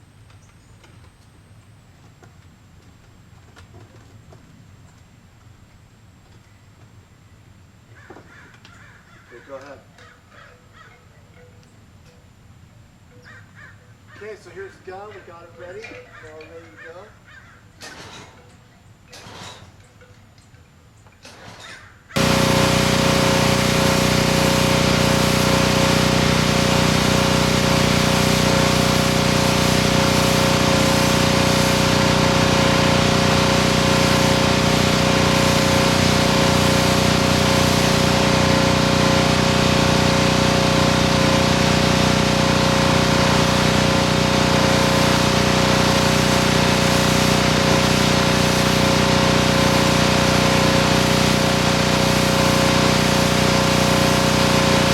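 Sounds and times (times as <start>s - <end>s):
pressure washer jet hissing: 22.2s - 54.9s
pressure washer motor humming: 22.2s - 54.9s.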